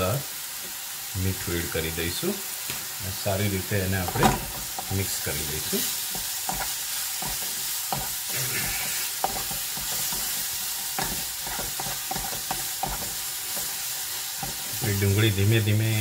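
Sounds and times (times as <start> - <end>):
onion sizzling in oil: 0.0 - 16.0
wooden spatula scraping a pan: 3.9 - 15.3.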